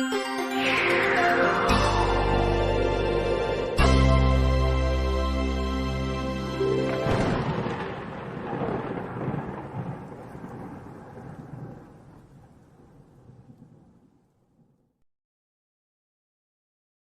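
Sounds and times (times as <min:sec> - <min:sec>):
thunder rumbling: 0:06.8 - 0:14.7.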